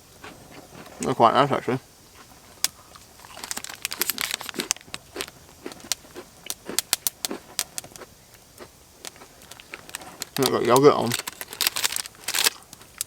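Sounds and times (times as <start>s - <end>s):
plastic packaging crinkling: 2.6s - 8.0s, 9.0s - 13.0s.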